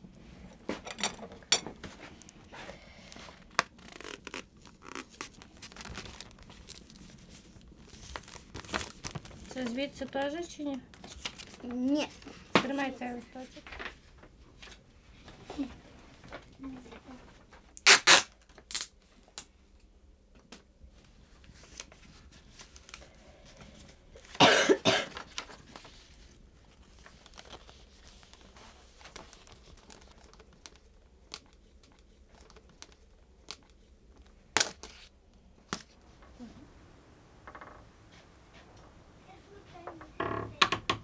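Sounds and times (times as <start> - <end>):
paper handling: 1.4 - 12.9, 25.1 - 36.4
sticky tape ripping off roll: 3.6 - 6.8, 17.8 - 19.5, 34.6 - 35.1.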